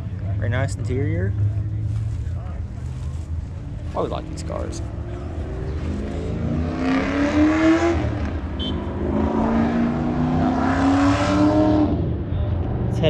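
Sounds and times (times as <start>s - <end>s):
drag car engine accelerating: 2.8s - 13.0s.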